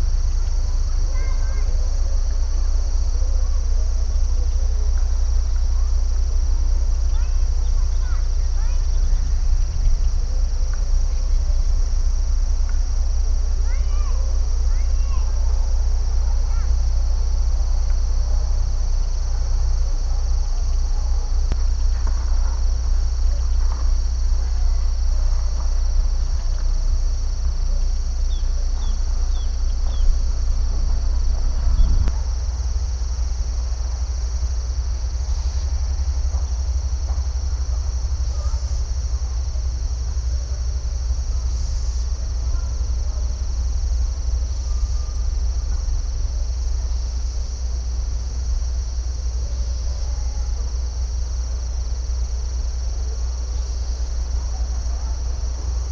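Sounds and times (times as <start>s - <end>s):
low rumble: 0.0s - 55.8s
insects trilling: 0.0s - 55.9s.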